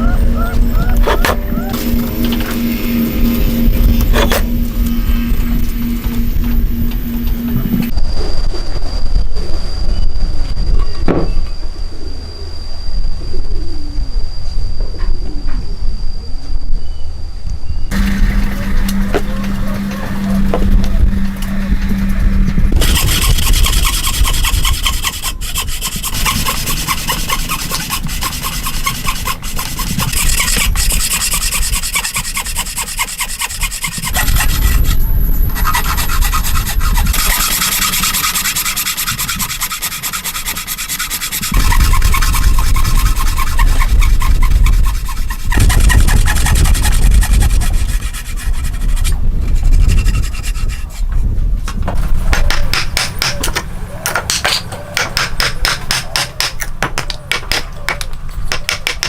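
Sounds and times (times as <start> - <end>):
hand tool rasping wood: 17.9 - 51.2, 52.3 - 59.0.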